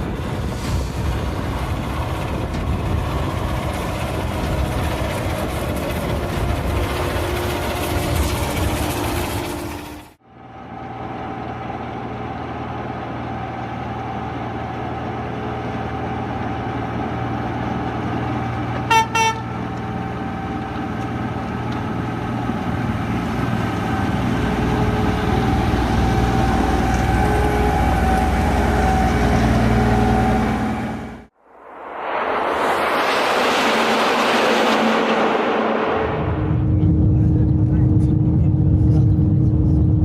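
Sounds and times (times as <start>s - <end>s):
locomotive drone: 0.0s - 40.0s
locomotive horn toots: 18.8s - 19.7s, 24.4s - 31.3s.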